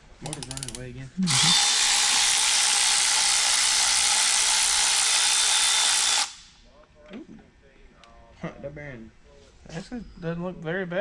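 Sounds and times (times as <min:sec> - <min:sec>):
air ratchet running: 0:00.2 - 0:06.6.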